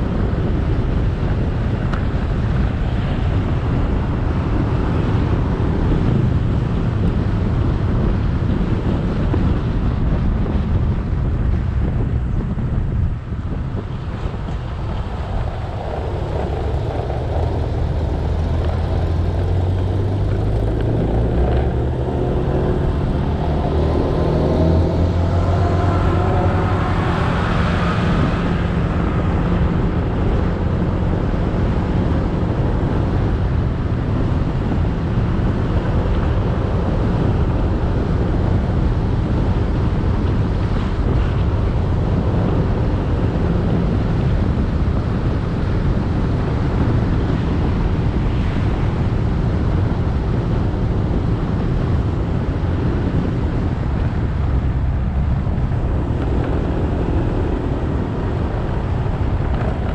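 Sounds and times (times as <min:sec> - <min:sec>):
wind on microphone: 0:00.0 - 0:59.9
passing engine rising in pitch: 0:15.6 - 0:31.0.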